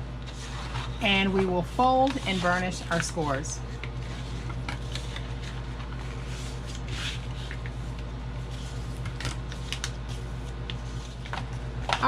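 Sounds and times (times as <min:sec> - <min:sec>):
low electrical hum: 0:00.0 - 0:12.0
board and paper rustling: 0:00.2 - 0:12.0.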